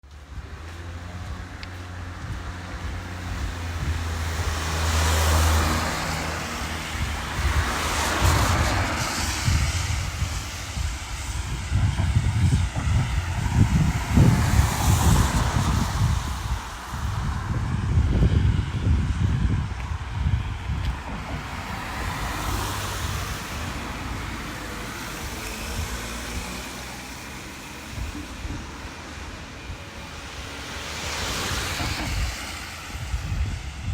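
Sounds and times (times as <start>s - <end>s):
car passing on wet road: 0.1s - 33.9s
rain hissing: 28.6s - 33.7s.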